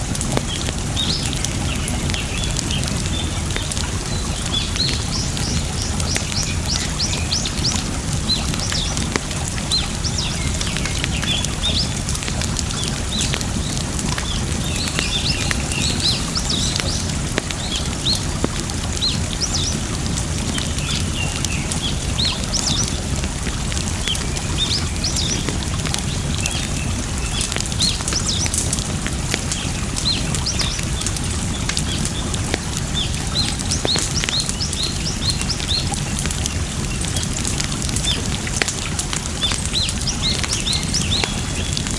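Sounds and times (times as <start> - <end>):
running water: 0.0 - 41.9
small birds chirping: 0.0 - 41.9
wood fire crackling: 0.0 - 41.9.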